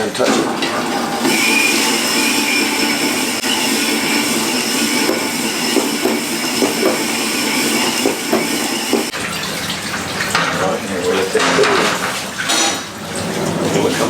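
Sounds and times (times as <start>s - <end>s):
cylinder hone running: 0.4s - 9.1s.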